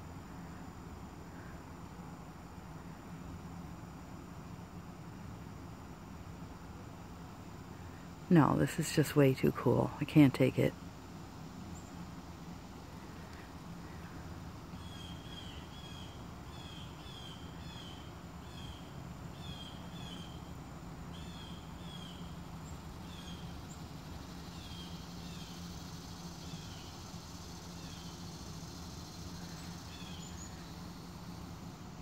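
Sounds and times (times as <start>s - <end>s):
faint outdoor background noise: 0.0s - 32.0s
bird chirping: 13.0s - 20.5s, 21.1s - 31.0s.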